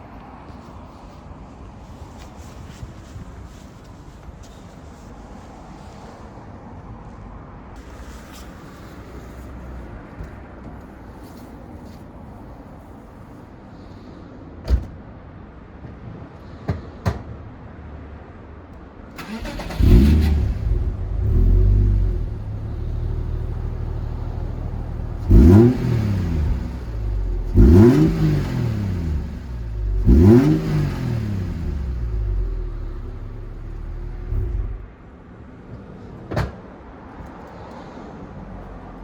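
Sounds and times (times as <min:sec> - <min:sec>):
car engine starting and revving: 0:19.1 - 0:34.9.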